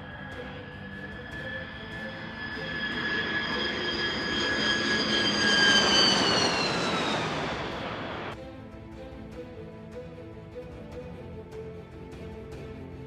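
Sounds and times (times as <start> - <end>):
jet aircraft passing by: 0.0 - 8.4.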